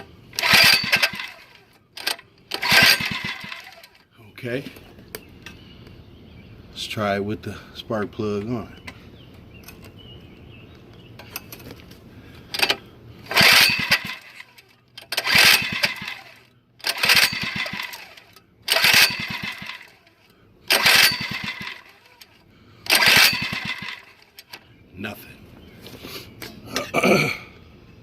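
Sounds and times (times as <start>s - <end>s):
small engine pull-start cranking: 0.0s - 4.0s, 12.5s - 24.7s.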